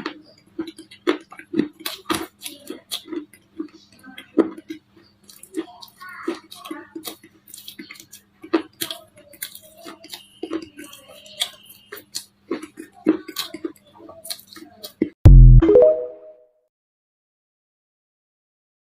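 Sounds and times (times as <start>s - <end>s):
loud low boom: 15.3s - 15.7s.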